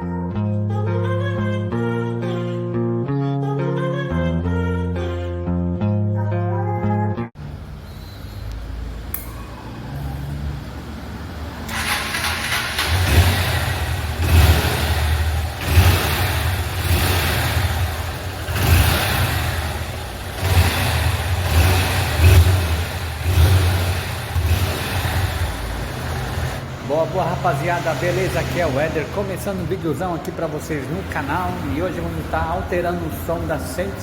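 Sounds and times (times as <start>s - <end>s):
motorcycle engine idling and revving: 7.4s - 34.0s.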